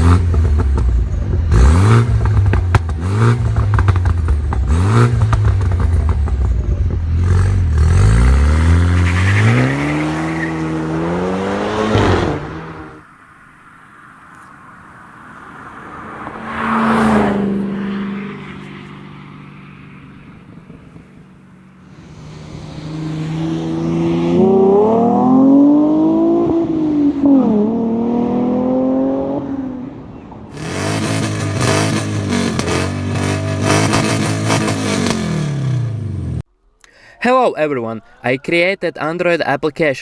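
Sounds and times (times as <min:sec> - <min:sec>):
car engine revving through exhaust: 0:00.0 - 0:13.1, 0:15.7 - 0:29.9, 0:30.5 - 0:36.5
different engine sound: 0:00.0 - 0:13.8.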